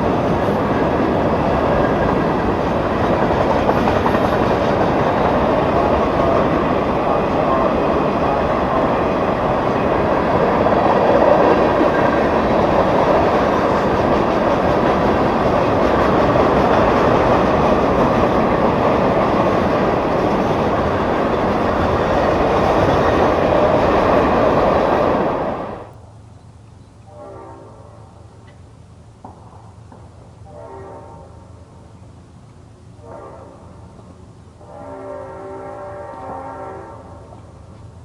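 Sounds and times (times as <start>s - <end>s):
train wheels clattering on rails: 0.0s - 25.9s
faint locomotive horn: 6.1s - 10.1s, 27.0s - 28.4s, 30.4s - 31.8s, 33.0s - 37.6s.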